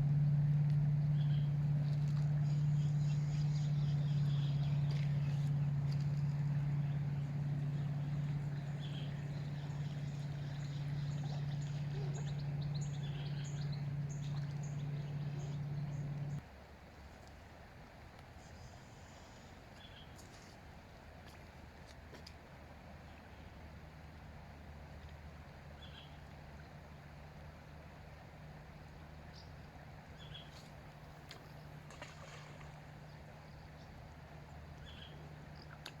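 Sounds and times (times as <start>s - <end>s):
steady low hum: 0.0s - 16.4s, 23.0s - 36.0s
small birds chirping: 1.0s - 16.4s, 33.0s - 35.9s.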